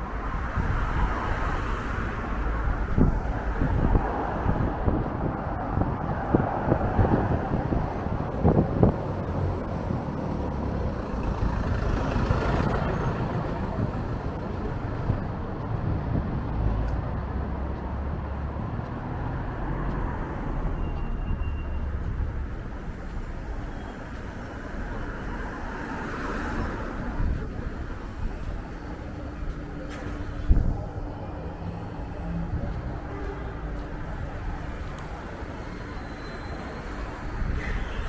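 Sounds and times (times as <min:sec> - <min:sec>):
wind buffeting microphone: 0:00.0 - 0:16.9, 0:26.7 - 0:36.0
street traffic: 0:00.0 - 0:38.0
vehicles passing: 0:00.0 - 0:38.0.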